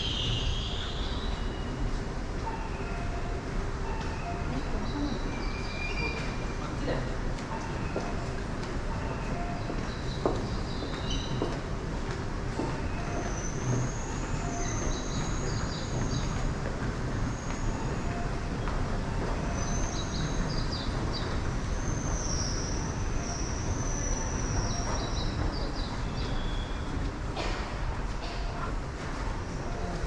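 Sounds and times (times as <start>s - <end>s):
train rumbling on rails: 0.0s - 30.0s.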